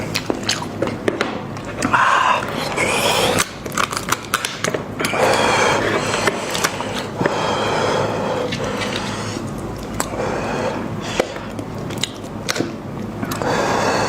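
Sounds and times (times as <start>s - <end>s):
wet chewing and tearing meat: 0.0s - 1.0s, 8.4s - 10.2s, 11.3s - 13.4s.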